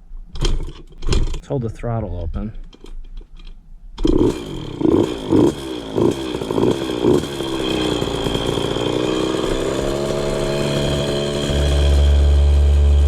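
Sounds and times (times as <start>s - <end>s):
two-stroke dirt bike engine: 4.0s - 13.0s.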